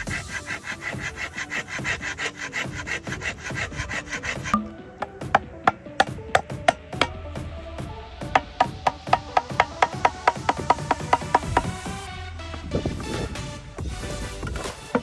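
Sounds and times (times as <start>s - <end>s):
hand saw cutting bamboo: 0.0s - 7.1s, 8.4s - 13.4s, 14.5s - 15.0s
sharp wooden knocks: 4.4s - 7.2s, 8.4s - 13.1s, 14.4s - 15.0s.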